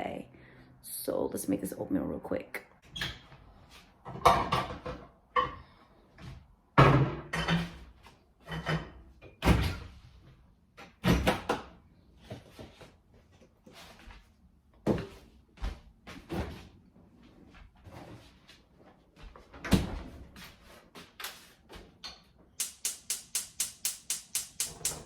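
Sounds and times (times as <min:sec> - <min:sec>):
kitchen knocks and bangs: 0:06.8 - 0:07.7.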